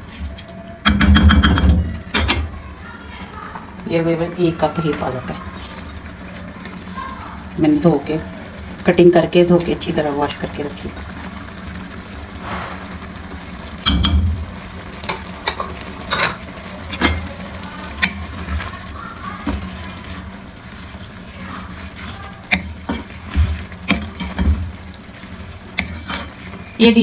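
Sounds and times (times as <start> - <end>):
meat and spinach sizzling: 0.0 - 27.0
spatula knocking and scraping pan: 15.0 - 20.2, 21.6 - 26.7.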